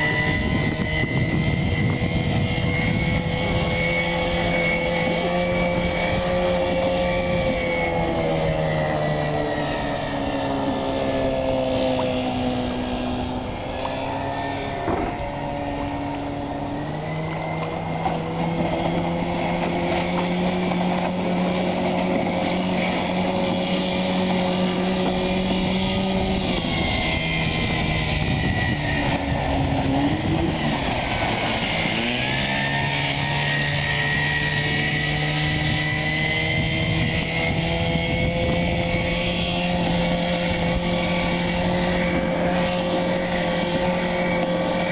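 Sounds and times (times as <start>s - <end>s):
motorboat engine running: 0.0s - 44.9s.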